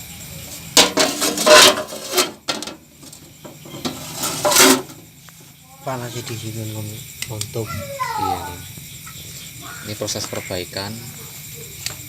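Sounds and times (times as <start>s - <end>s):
tools rasping on metal: 1.0s - 2.4s, 3.0s - 5.0s.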